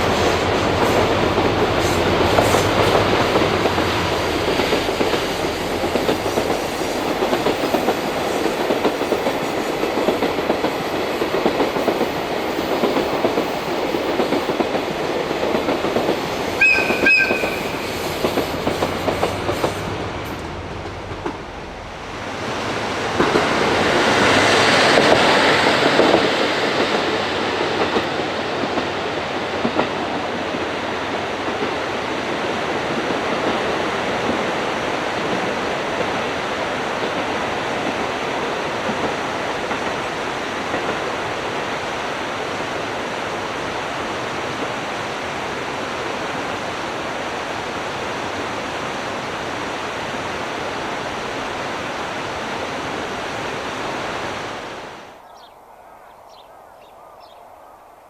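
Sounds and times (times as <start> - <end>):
train wheels clattering on rails: 0.0 - 41.6.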